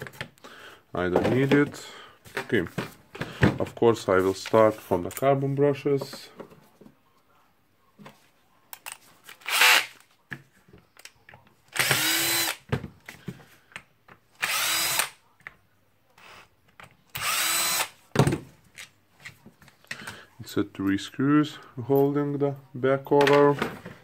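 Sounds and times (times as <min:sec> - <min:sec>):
powered screwdriver running: 0:09.4 - 0:09.9, 0:11.8 - 0:12.6, 0:14.4 - 0:15.1, 0:17.2 - 0:17.9.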